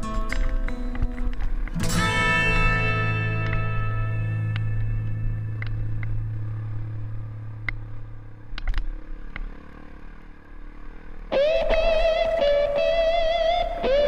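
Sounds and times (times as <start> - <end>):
dirt bike engine running: 0.0 - 14.0
sharp clicks and clatters: 8.5 - 9.5.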